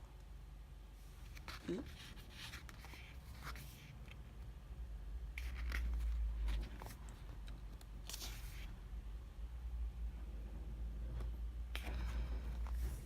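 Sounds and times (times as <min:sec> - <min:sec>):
book pages rustling: 0:01.1 - 0:04.2, 0:05.3 - 0:08.7.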